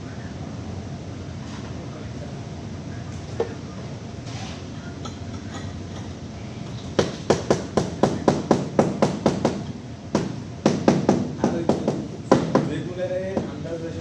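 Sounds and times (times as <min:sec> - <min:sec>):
rapid hammer blows: 0:07.0 - 0:13.8.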